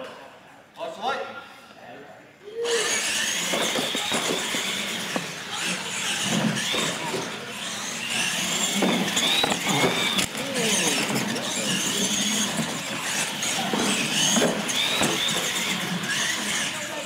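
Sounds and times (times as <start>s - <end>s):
toy truck motor whine: 2.6s - 17.0s
trucks knocking on ramps: 8.4s - 10.3s, 11.0s - 16.3s.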